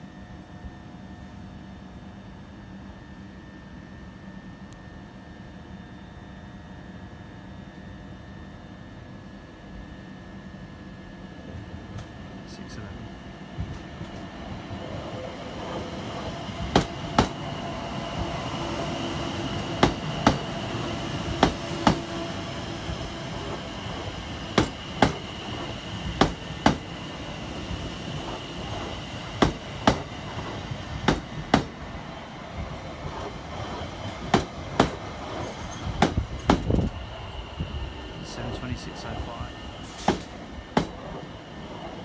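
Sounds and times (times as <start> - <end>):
train rumble: 10.9 - 42.0
train wheels clicking over rail joint: 19.8 - 20.5, 24.6 - 26.9, 28.3 - 31.7
faint high whine: 35.3 - 42.0.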